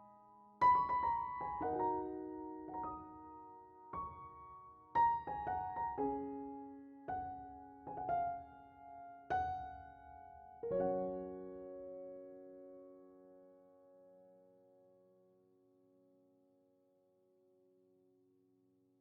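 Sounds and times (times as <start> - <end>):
slow piano music: 0.0 - 15.2.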